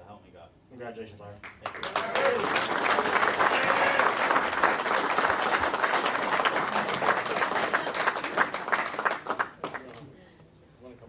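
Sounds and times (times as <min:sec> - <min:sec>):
audience applauding: 0:01.4 - 0:09.9.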